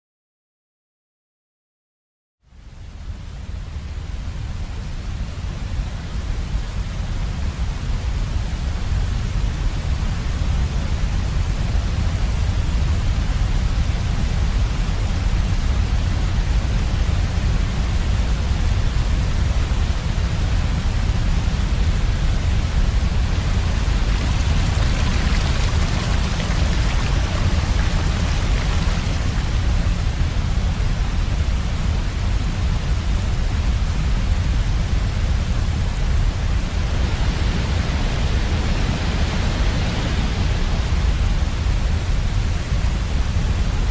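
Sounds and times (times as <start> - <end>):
heavy waterfall rushing: 20.0 - 33.6, 36.2 - 43.5.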